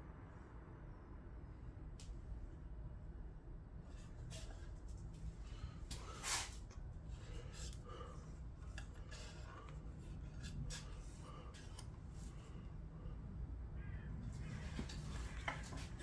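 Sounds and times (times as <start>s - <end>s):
light clicks and scrapes: 3.9s - 12.6s, 14.4s - 16.0s.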